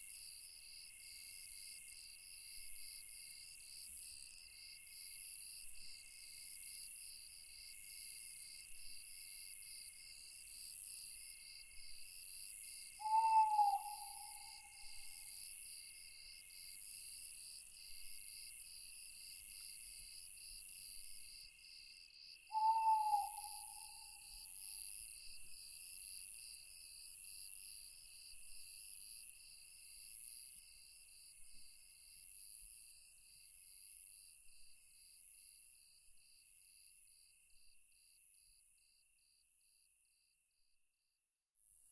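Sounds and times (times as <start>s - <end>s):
night insects chorus: 0.0s - 25.4s
owl hoot: 13.0s - 15.0s, 22.5s - 24.3s.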